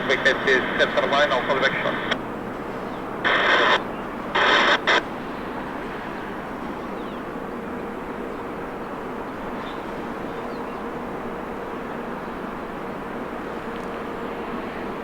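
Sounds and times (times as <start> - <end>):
radio channel hiss: 0.0 - 2.2, 3.2 - 6.1
radio transmission bursts: 0.0 - 2.2, 3.2 - 5.2.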